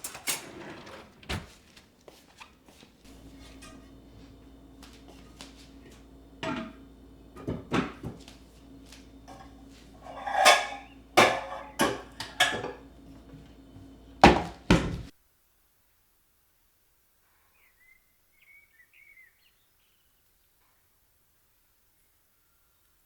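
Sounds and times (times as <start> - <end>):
faint steady hum: 3.0 - 15.1
household things knocking and clattering: 3.1 - 15.1
rattling clatter: 9.3 - 12.9.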